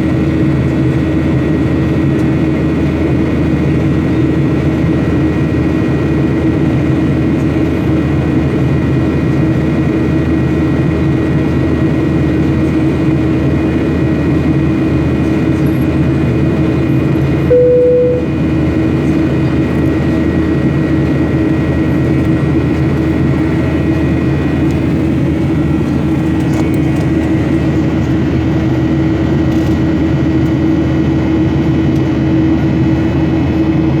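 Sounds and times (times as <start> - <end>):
jet engine cabin hum: 0.2 - 33.9
short single tone: 17.5 - 18.4.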